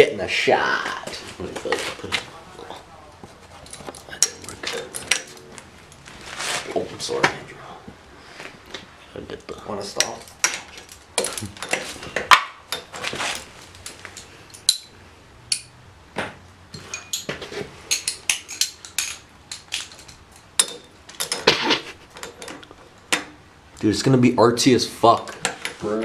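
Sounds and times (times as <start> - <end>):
metal tools clinking and clattering: 1.6 - 6.1, 9.8 - 15.7, 16.7 - 23.2.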